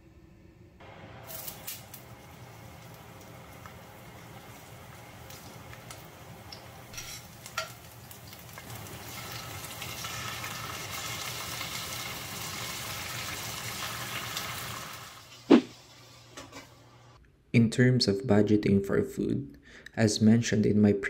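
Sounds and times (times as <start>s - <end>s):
onion sizzling in oil: 0.8s - 17.1s.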